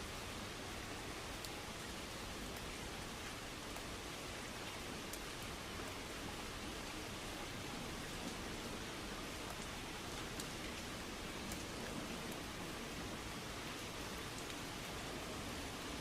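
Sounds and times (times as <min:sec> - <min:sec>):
heavy rain on a car: 0:00.0 - 0:16.0
raindrop ticks: 0:09.4 - 0:10.8, 0:11.4 - 0:12.4.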